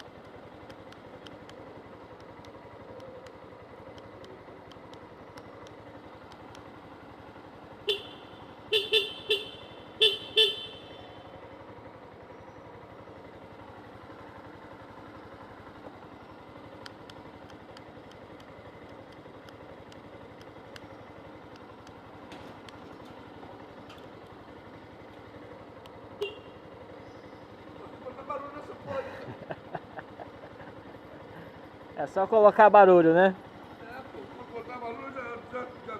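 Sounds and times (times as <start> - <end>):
street traffic noise: 0.0 - 35.9
vehicle horn beeps: 7.8 - 11.2, 26.2 - 26.6.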